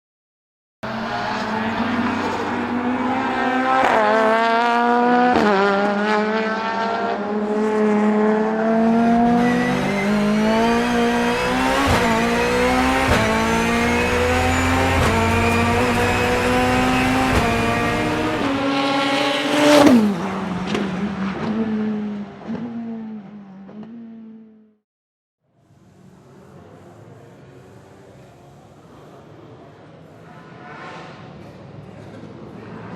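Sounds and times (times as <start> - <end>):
turbocharged car engine accelerating: 0.8 - 24.7.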